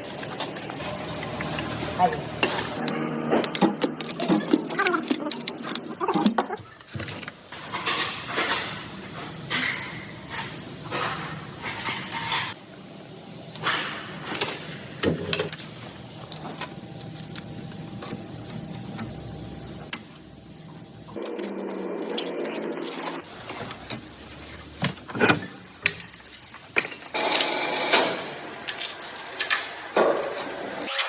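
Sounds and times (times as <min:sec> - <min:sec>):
hand tools clicking and knocking: 0:00.8 - 0:08.8, 0:23.3 - 0:30.4
steady hiss: 0:06.6 - 0:21.2, 0:23.2 - 0:30.9.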